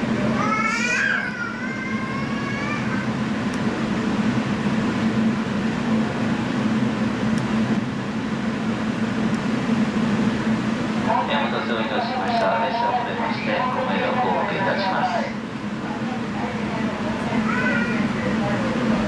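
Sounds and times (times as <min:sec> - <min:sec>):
rolling rail noise with hum: 0:00.0 - 0:19.0.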